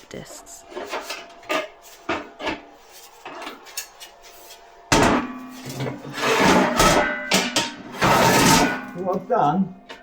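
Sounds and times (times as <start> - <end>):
metallic ringing: 6.6 - 9.2.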